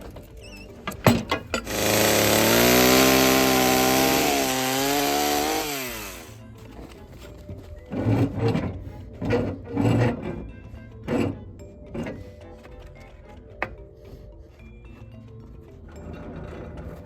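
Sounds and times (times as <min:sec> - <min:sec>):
chainsaw cutting log: 0:01.6 - 0:06.4.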